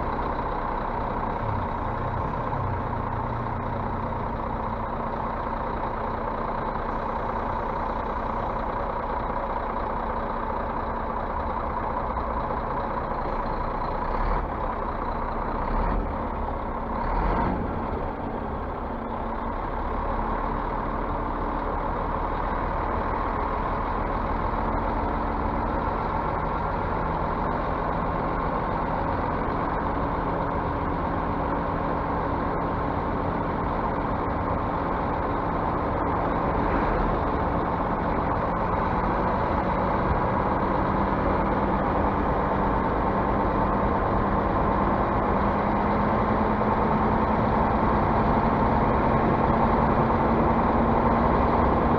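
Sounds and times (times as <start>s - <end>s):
bus engine and road noise: 0.0s - 51.9s.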